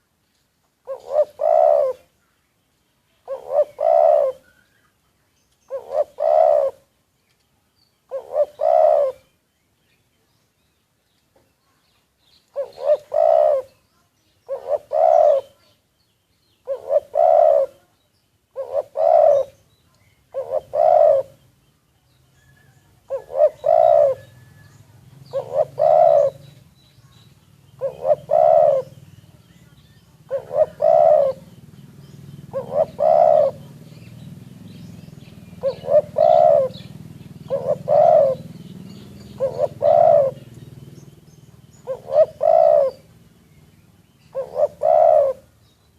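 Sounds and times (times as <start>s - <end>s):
faint low hum: 0.0s - 45.9s
dove cooing: 0.8s - 2.1s, 3.2s - 4.7s, 5.7s - 6.9s, 8.1s - 9.3s, 12.5s - 13.8s, 14.4s - 15.8s, 16.6s - 19.7s, 20.3s - 21.6s, 22.4s - 26.7s, 27.7s - 43.3s, 44.2s - 45.7s.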